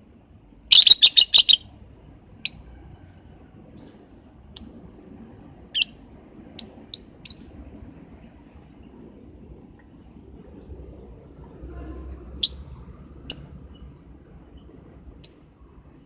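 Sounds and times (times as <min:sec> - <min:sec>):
bird chirping: 0:00.7 - 0:01.7, 0:02.4 - 0:02.8, 0:04.5 - 0:07.6, 0:12.4 - 0:15.5.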